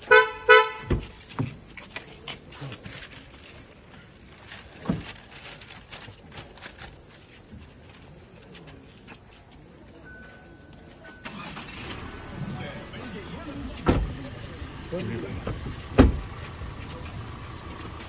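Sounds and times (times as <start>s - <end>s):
car horn toot: 0.1s - 1.0s
dull low thumps: 13.8s - 17.7s.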